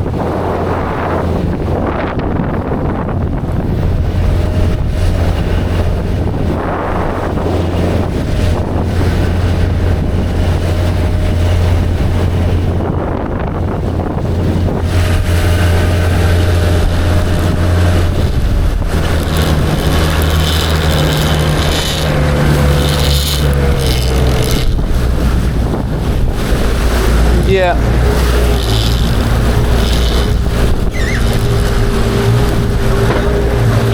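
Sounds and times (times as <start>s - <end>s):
boat engine running: 0.0s - 33.9s
wind buffeting microphone: 0.0s - 33.9s.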